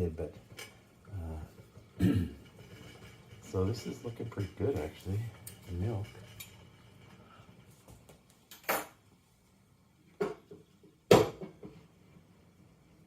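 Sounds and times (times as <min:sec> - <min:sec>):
dishes clinking and knocking: 0:01.6 - 0:07.6, 0:08.5 - 0:09.0, 0:10.1 - 0:11.9.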